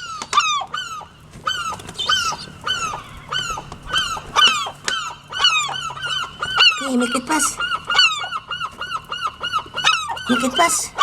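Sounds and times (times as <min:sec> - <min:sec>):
gull calling: 0:00.0 - 0:11.0.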